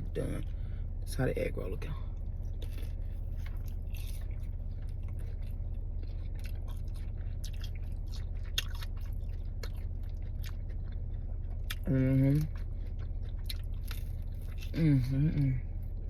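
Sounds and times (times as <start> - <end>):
steady low hum: 0.0 - 16.0
person chewing food: 2.2 - 16.0
small crunches and wet clicks: 2.4 - 14.8.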